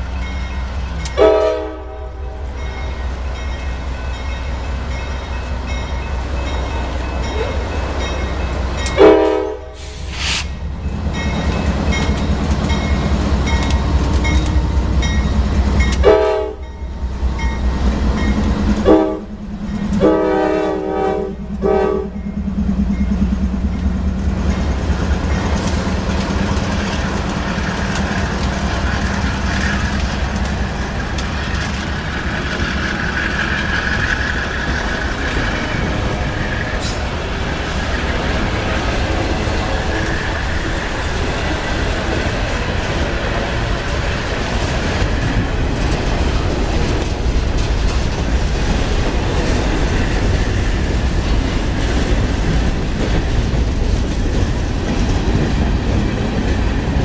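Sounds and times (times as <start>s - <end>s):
diesel locomotive engines droning: 0.0s - 57.0s
train wheels on rails: 0.0s - 57.0s
locomotive air horn blasts: 1.2s - 2.5s, 9.0s - 10.5s, 16.0s - 16.7s, 18.8s - 19.4s, 20.0s - 22.2s.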